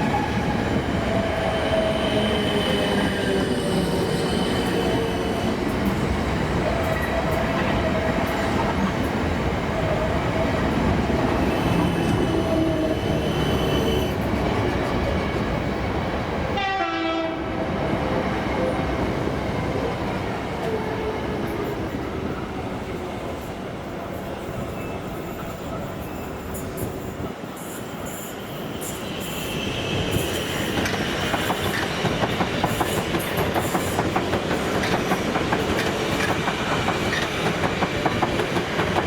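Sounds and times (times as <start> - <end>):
train rumbling past on rails: 0.0 - 39.0
train horn blast: 16.6 - 17.6.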